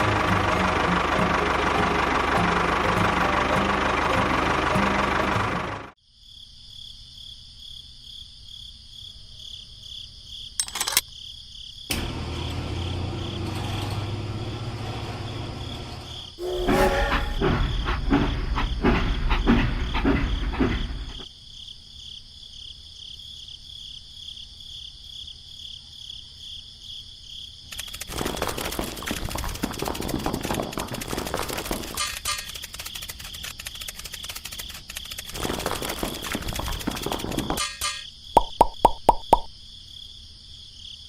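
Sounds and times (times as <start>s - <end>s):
crickets chirping: 6.0s - 13.5s, 15.0s - 41.0s
scraping and rattling: 13.2s - 21.2s, 27.8s - 38.1s
clattering knocks: 16.4s - 21.3s, 35.3s - 39.5s.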